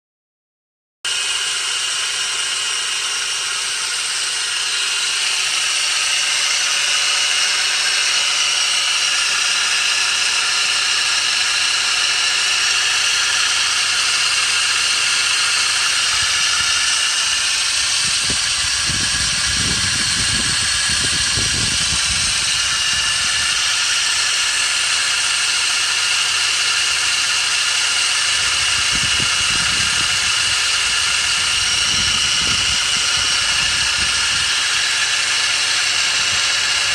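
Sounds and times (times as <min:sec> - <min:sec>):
engine idling: 0:01.1 - 0:36.9
high-pitched pulley whir: 0:01.1 - 0:36.9
low rumbling: 0:12.9 - 0:24.8, 0:28.2 - 0:36.9.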